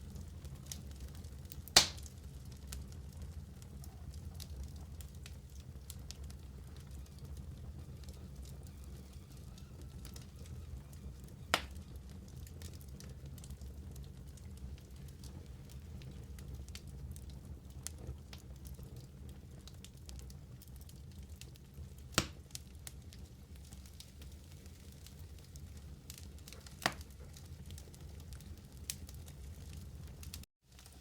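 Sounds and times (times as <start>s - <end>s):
wood fire crackling: 0.0s - 31.0s
sharp loud pops: 1.8s - 2.1s.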